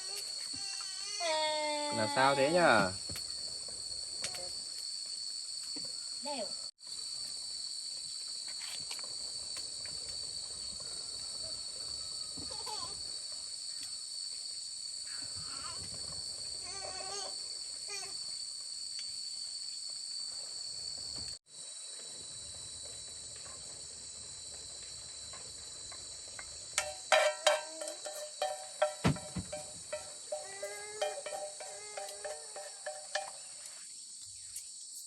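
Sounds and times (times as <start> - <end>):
high-pitched insect chorus: 0.0 - 35.0
wavering animal calls: 29.5 - 33.6.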